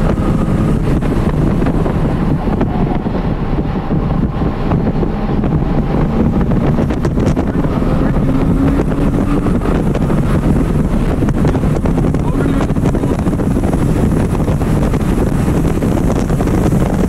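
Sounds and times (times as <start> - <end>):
car engine accelerating: 0.0 - 17.0
wind noise: 0.0 - 17.0.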